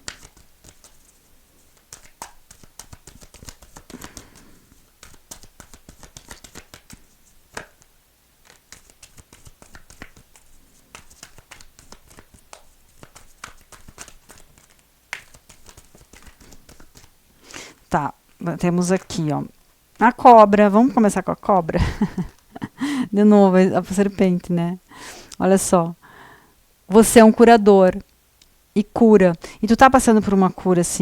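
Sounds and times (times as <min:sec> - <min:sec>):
cards flicking and tapping: 0:00.0 - 0:17.2.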